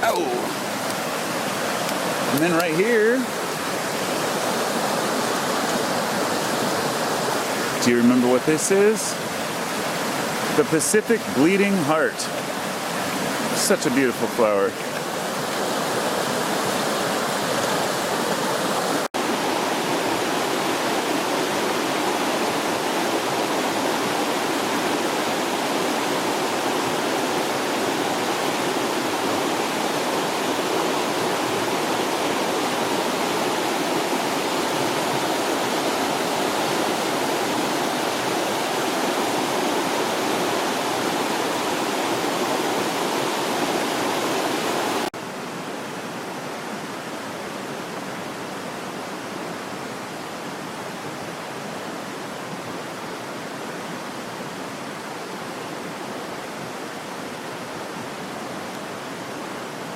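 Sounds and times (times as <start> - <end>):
fast-flowing creek: 0.0 - 59.9.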